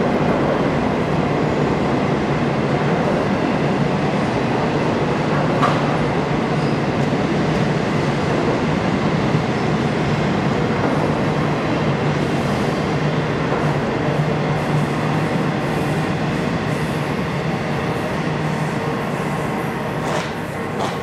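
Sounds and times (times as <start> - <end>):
freight train rolling past: 0.0 - 21.0.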